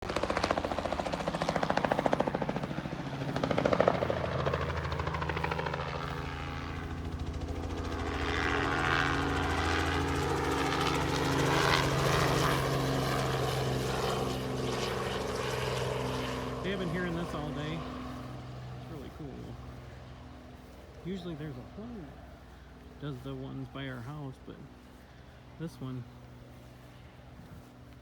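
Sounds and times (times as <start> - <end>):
helicopter rotor thumping: 0.0 - 19.4.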